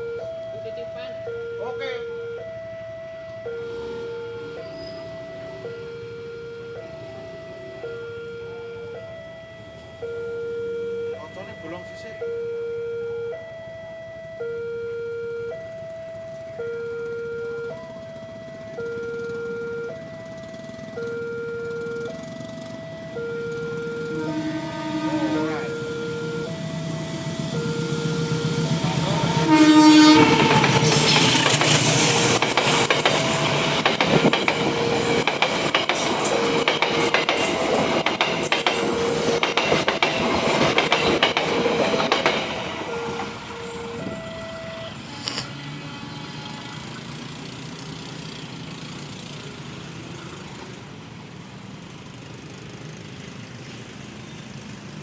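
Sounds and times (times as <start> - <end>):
train diesel engine running: 17.2 - 55.0
train horn blast: 24.1 - 26.5, 27.8 - 32.4, 42.8 - 47.5
wheels clacking over rail joints: 30.2 - 44.2.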